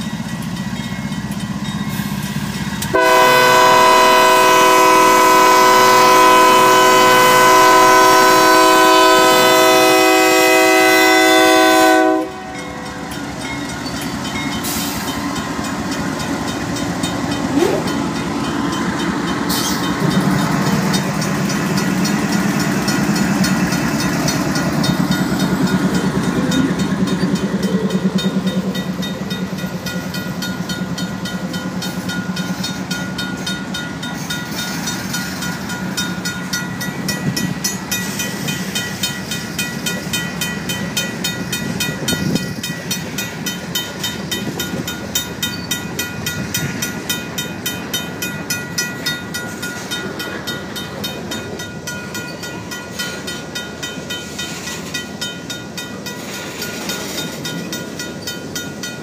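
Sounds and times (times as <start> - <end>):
crossing bell ringing rapidly: 0.0 - 3.0, 12.2 - 59.0
train wheels on rails: 0.0 - 59.0
locomotive air horn: 2.9 - 12.6.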